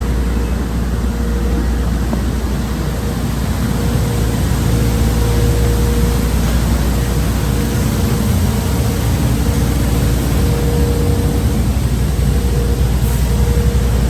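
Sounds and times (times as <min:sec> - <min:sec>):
car wash equipment rushing: 0:00.0 - 0:14.0
low rumble: 0:00.0 - 0:14.0.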